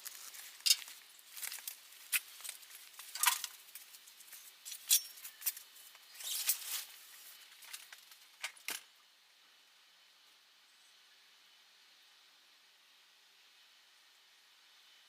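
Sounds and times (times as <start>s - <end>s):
tools being moved about: 0.5s - 5.6s.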